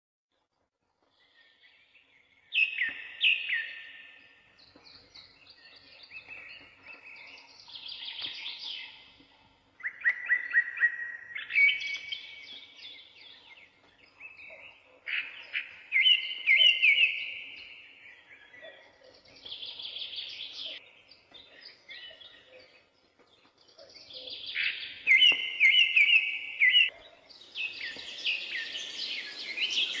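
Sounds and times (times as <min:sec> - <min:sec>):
songbird singing: 0:00.5 - 0:30.0.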